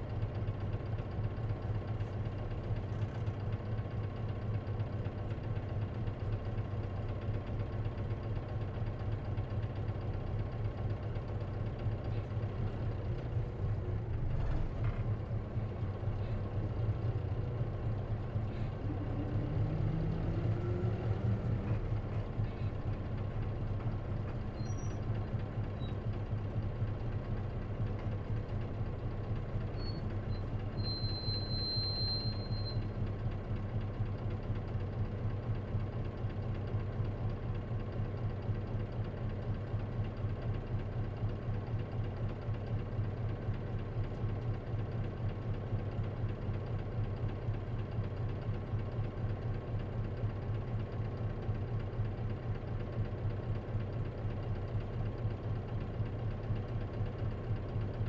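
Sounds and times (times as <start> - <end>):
bus engine humming: 12.0 - 34.2
brief high squeal: 24.6 - 25.1, 29.7 - 32.9.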